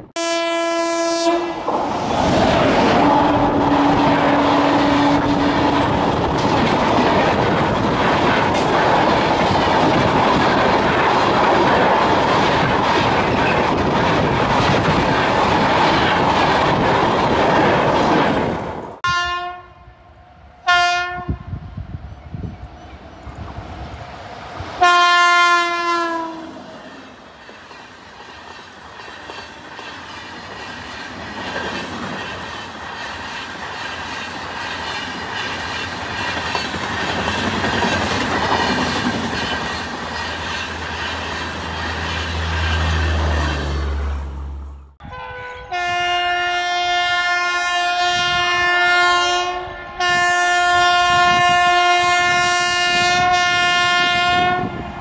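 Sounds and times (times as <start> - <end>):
train passing with rumble: 0.0 - 19.3, 19.9 - 55.0
locomotive horn: 0.2 - 1.7, 3.0 - 6.0, 19.0 - 20.0, 20.6 - 21.5, 24.8 - 26.7, 45.0 - 54.8
wheels clacking over rail joints: 1.7 - 19.0, 26.8 - 43.7.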